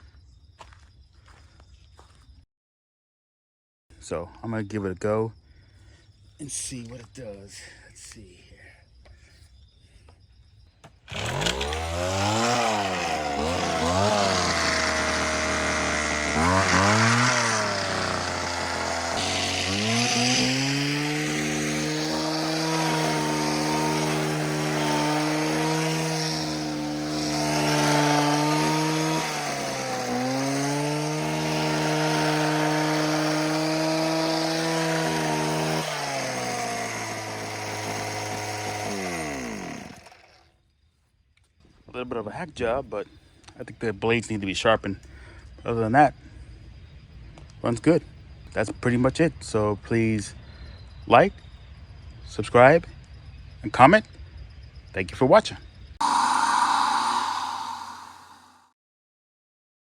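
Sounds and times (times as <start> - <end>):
hedge trimmer engine revving: 11.1 - 40.4, 56.0 - 58.6.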